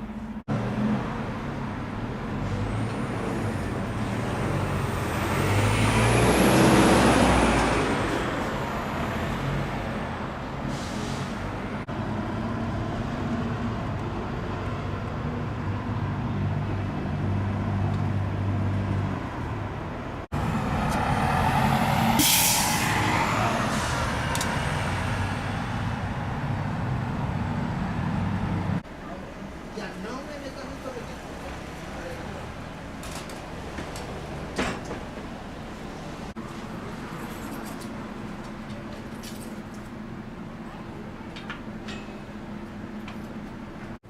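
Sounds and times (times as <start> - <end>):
large vehicle engine rumbling: 0.0 - 44.0
vehicle passing loudly: 2.3 - 10.3, 20.3 - 28.8.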